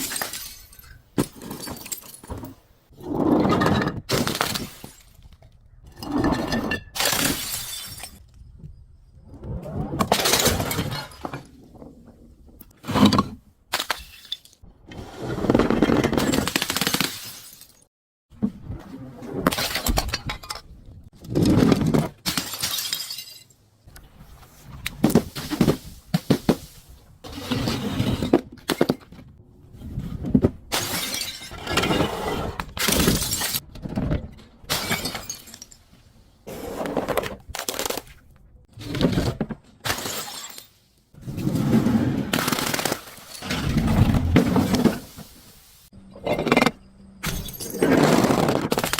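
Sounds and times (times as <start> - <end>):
glass bottles shattering: 0.0 - 2.5, 4.2 - 5.2, 6.3 - 8.2, 13.8 - 14.6, 16.2 - 17.9, 22.3 - 23.6, 30.7 - 32.1, 32.8 - 33.6, 34.7 - 35.9, 39.8 - 40.8, 47.2 - 48.9.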